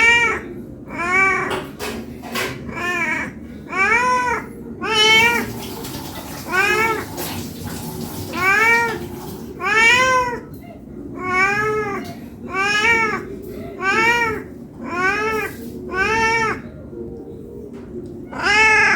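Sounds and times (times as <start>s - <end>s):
cat meowing: 0.0s - 7.2s, 8.3s - 10.6s, 11.2s - 16.8s, 18.3s - 18.9s.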